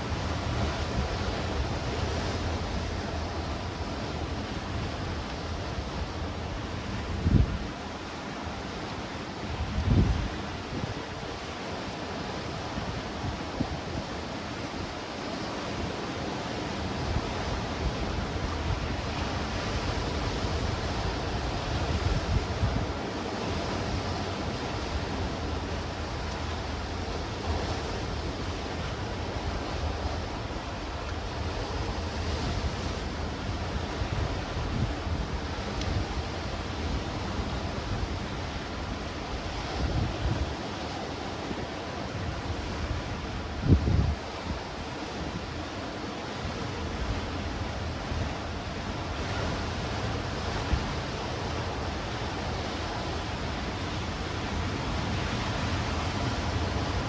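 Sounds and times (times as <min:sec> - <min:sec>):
wind rumbling on microphone: 0:00.0 - 0:07.8, 0:09.5 - 0:11.5, 0:16.8 - 0:45.7
surf washing against rocks: 0:00.0 - 0:57.0.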